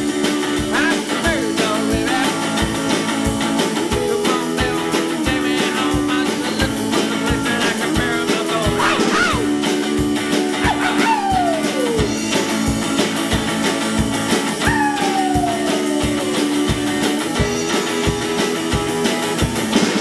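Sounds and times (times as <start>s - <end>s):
rockabilly guitar over a beat: 0.0s - 20.0s
guitar slides downward: 14.4s - 20.0s.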